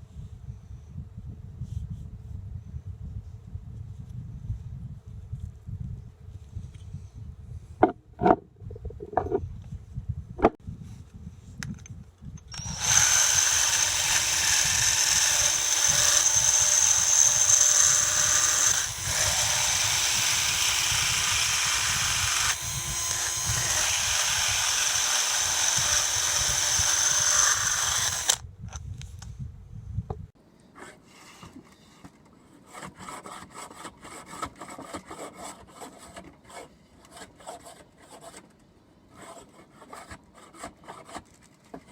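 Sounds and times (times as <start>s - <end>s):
power tool whining: 12.5s - 28.4s.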